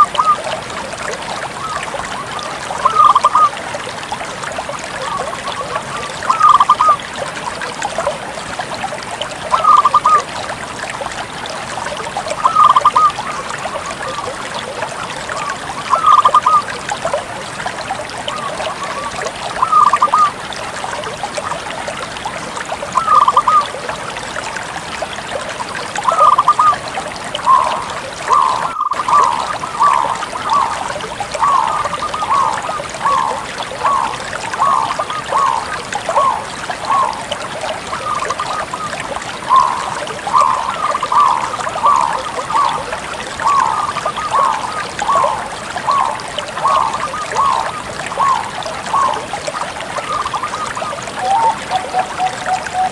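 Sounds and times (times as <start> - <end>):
dove cooing: 6.3 - 7.0, 27.5 - 30.8, 31.4 - 37.2, 39.5 - 42.8.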